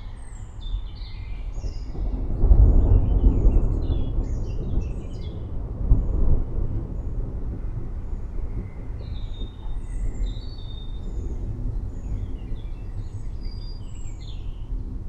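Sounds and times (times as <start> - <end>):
birds chirping and whistling: 8.8 - 14.8.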